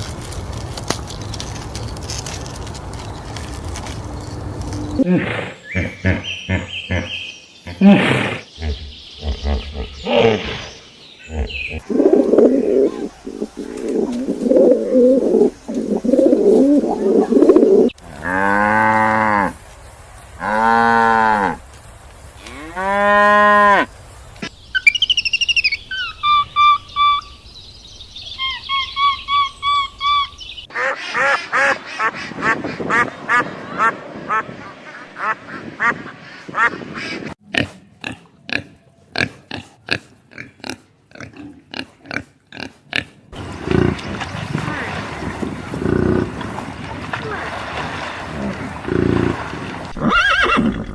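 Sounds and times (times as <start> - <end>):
bird chirping: 3.0 - 14.1, 24.4 - 30.7
cattle mooing: 18.1 - 19.5.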